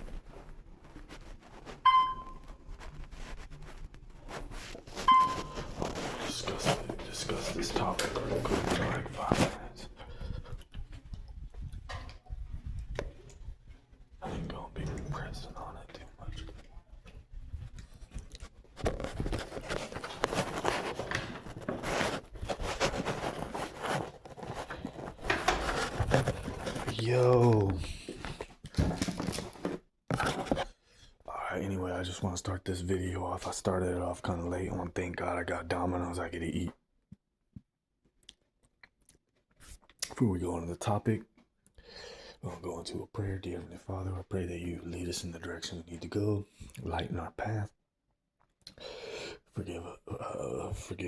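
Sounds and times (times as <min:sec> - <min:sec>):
rustling and scraping: 0:00.0 - 0:30.8.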